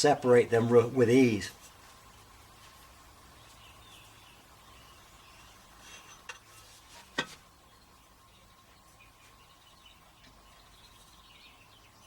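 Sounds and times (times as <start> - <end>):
brush on metal pipe: 5.7 - 7.4.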